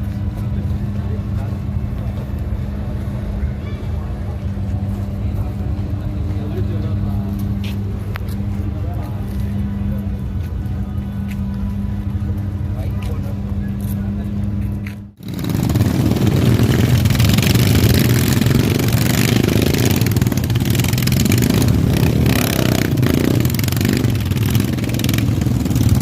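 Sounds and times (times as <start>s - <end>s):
motorcycle engines running: 0.0s - 26.0s.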